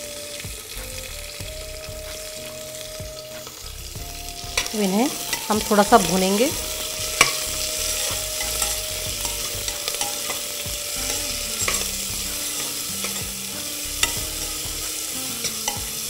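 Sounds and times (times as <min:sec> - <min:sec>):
onions sizzling in hot fat: 0:00.0 - 0:16.0.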